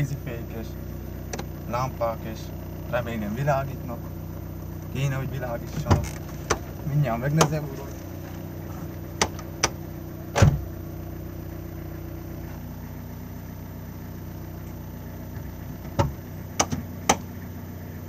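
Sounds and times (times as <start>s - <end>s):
car engine idling: 0.0s - 18.0s
heavy thump: 9.2s - 10.7s, 15.4s - 17.3s.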